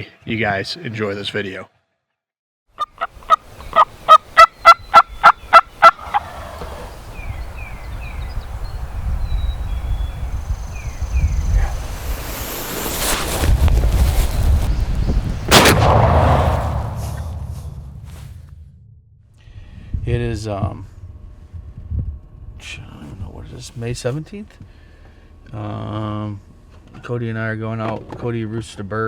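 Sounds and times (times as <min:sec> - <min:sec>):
turkey gobbling: 0:02.8 - 0:06.7
wind rumbling on microphone: 0:06.3 - 0:18.9
loud bang: 0:15.5 - 0:19.3.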